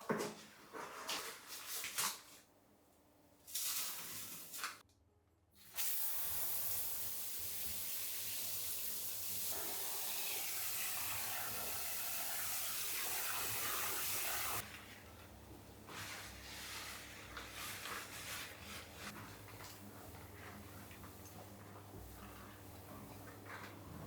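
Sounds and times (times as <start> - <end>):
tap water running into sink: 5.8 - 14.6.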